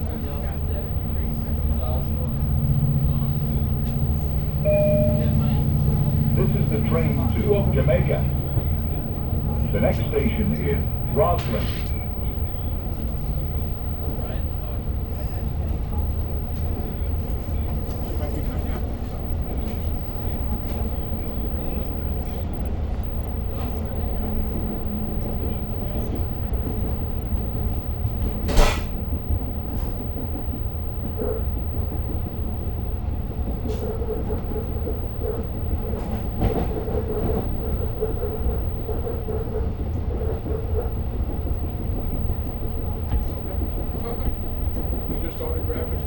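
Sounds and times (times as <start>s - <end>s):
faint wavering tone: 1.8s - 10.1s
train coach rumbling on track: 27.6s - 46.0s.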